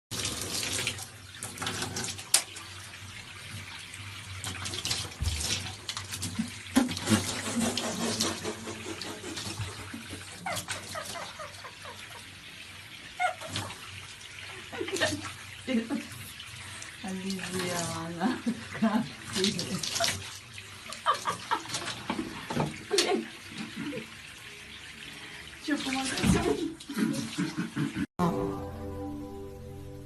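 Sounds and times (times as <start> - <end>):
tap water running: 0.1 - 28.1
knocks and splashes: 4.4 - 11.3, 21.0 - 24.0, 25.8 - 27.4.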